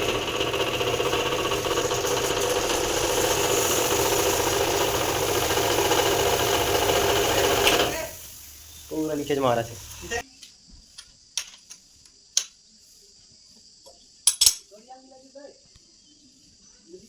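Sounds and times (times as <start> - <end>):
pressure washer running: 0.0 - 10.2.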